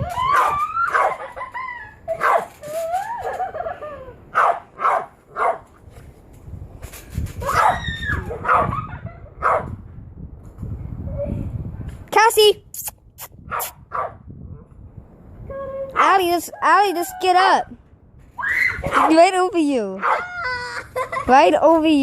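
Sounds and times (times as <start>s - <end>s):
dog yipping: 0.1s - 3.6s, 7.4s - 9.7s, 13.5s - 14.2s, 20.0s - 20.6s.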